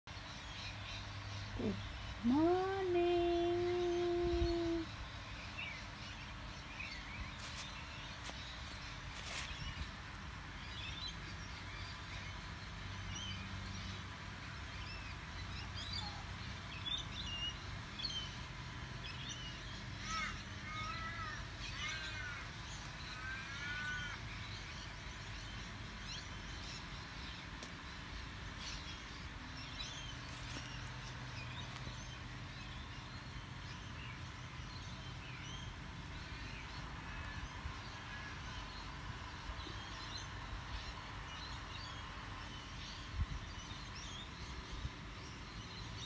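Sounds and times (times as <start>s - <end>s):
birds calling and chirping: 0.1s - 46.0s.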